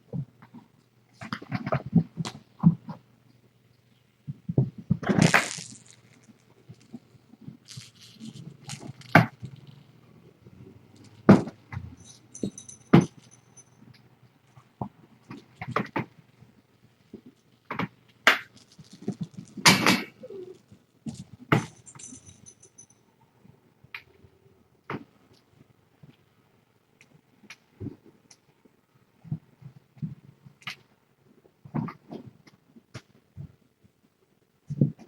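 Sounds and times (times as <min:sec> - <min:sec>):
high metallic jingle: 0:12.0 - 0:13.8, 0:21.6 - 0:23.0.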